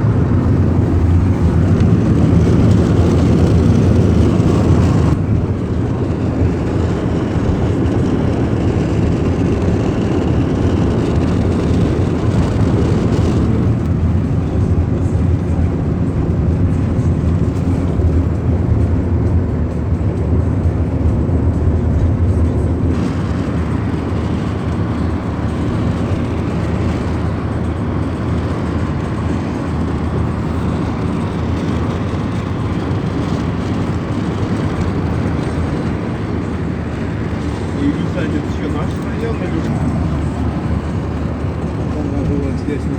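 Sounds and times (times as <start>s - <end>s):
car road and engine noise: 0.0s - 42.9s.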